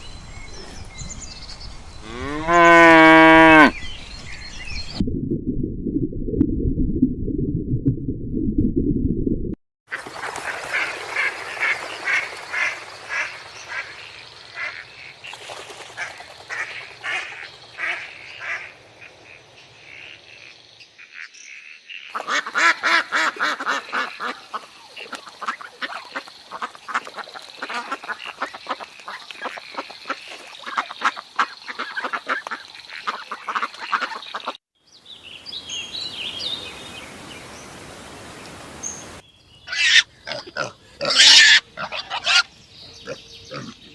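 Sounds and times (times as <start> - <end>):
ducks quacking: 16.0 - 20.2, 22.1 - 34.6.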